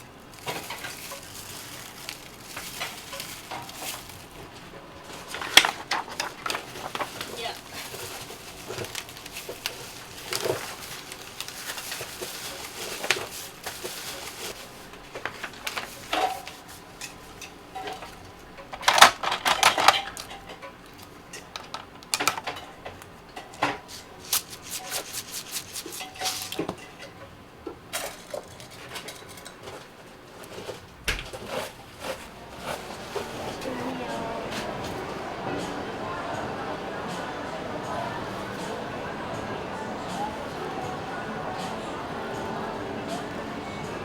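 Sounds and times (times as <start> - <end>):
kitchen utensils clinking: 0.0 - 44.0
utensils clattering: 0.0 - 44.0.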